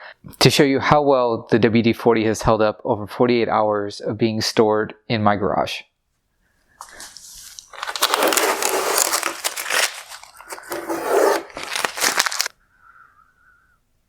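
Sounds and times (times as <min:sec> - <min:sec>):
tape peeled off plastic: 0:06.8 - 0:12.5.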